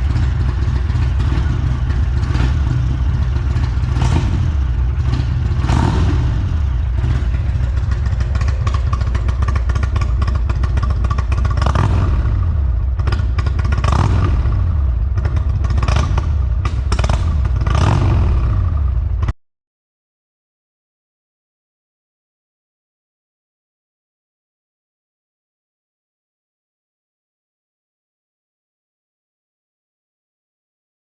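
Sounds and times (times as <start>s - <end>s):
motorcycle engine idling and blipping: 0.0s - 19.4s.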